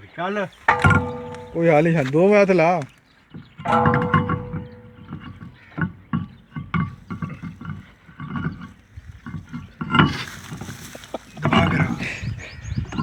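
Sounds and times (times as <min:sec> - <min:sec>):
knocks and clanks: 0:00.7 - 0:02.1, 0:03.3 - 0:10.2.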